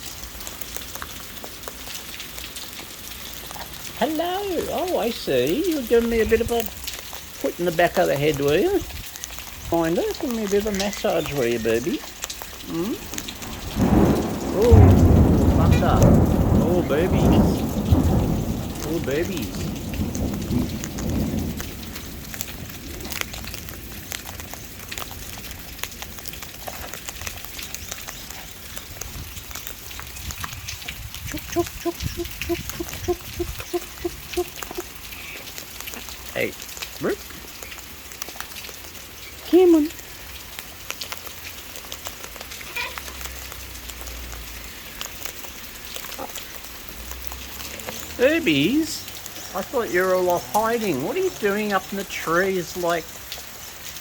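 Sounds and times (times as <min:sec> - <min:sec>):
drips tapping: 0:00.0 - 0:54.0
raindrops pattering close by: 0:00.0 - 0:54.0
steady rain hiss: 0:00.0 - 0:54.0
bird calls: 0:30.4 - 0:36.1.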